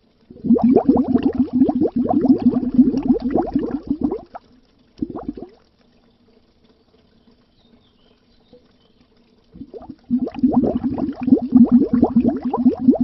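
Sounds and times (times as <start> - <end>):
air bubbles underwater: 0.0 - 5.7, 9.5 - 13.0
faint low hum: 0.0 - 13.0.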